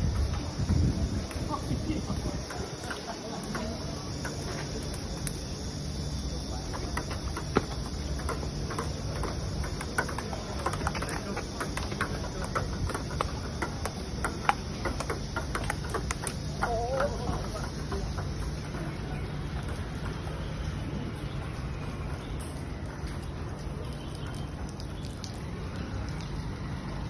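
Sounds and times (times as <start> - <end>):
table tennis ball clicks: 6.8 - 17.4.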